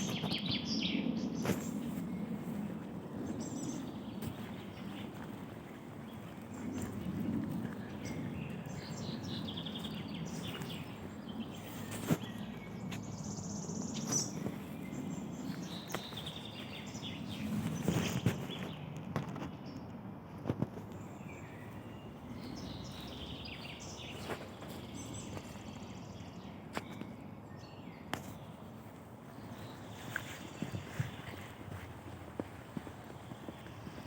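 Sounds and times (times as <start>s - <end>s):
songbirds singing trills: 0.0s - 20.0s, 20.7s - 34.0s.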